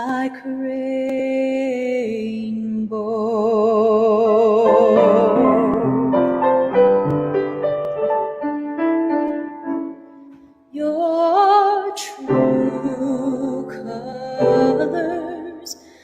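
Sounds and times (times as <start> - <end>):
woman singing with vibrato: 0.0 - 6.4, 10.7 - 16.0
piano accompaniment: 4.1 - 10.6, 12.2 - 15.8.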